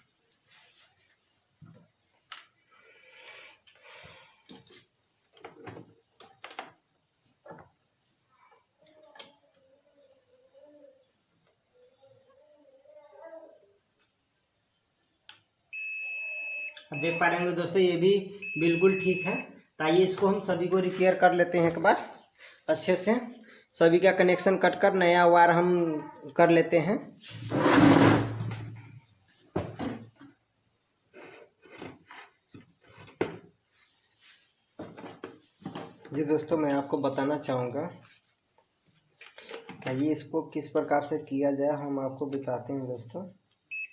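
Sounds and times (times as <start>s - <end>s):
cricket chirping: 0.0s - 43.9s
multimeter continuity beep: 15.7s - 19.6s, 43.7s - 43.9s.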